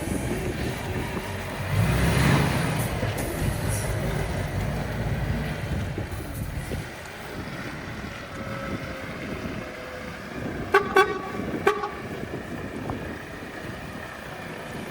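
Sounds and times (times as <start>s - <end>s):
outdoor background noise: 0.0s - 14.9s
vehicle horn toots: 10.7s - 12.2s.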